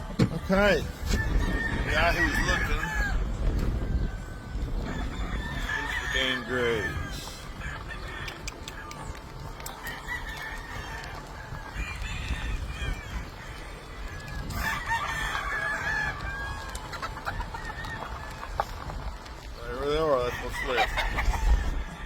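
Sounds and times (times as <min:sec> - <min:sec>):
chickens clucking: 0:00.0 - 0:22.0
roosters crowing: 0:00.4 - 0:22.0.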